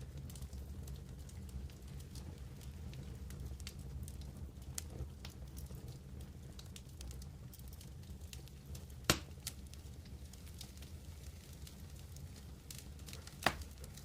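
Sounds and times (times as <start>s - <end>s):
campfire crackling: 0.0s - 14.0s
low rumble of burning: 0.0s - 14.0s
loud pop of fire: 9.0s - 9.5s, 13.2s - 13.9s.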